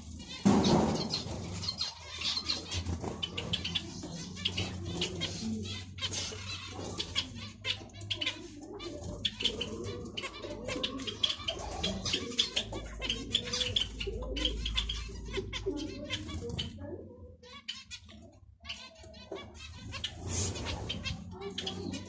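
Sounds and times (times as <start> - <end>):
finches chirping: 0.0 - 22.0.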